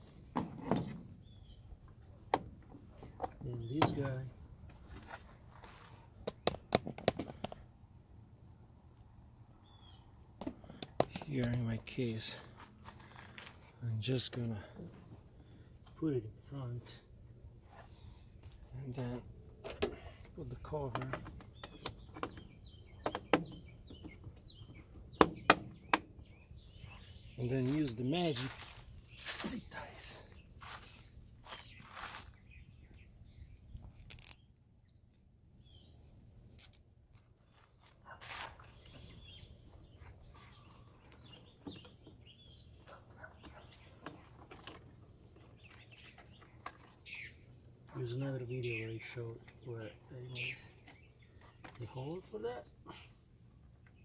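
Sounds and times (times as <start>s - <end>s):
bird chirping: 1.2s - 2.1s, 9.6s - 10.2s, 20.4s - 36.8s, 38.6s - 52.9s
clicks of parts being handled: 33.8s - 34.4s, 36.0s - 36.8s.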